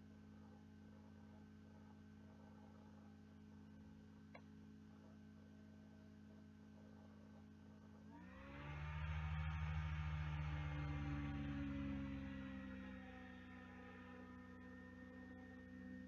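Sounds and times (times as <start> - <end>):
faint steady hum: 9.4 - 16.0.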